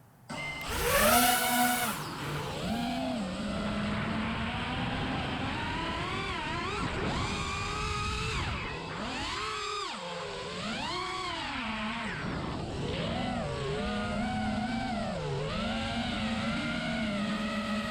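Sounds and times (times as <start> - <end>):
quadcopter motors whining: 0.3 - 8.3.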